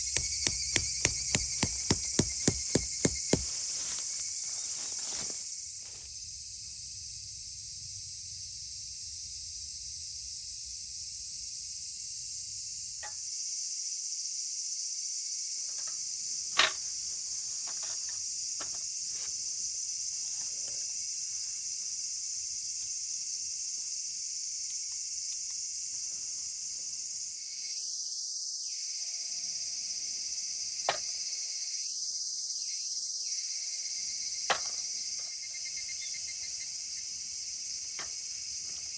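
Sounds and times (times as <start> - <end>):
campfire wood popping: 0.0 - 3.6
crickets chirping: 0.0 - 38.9.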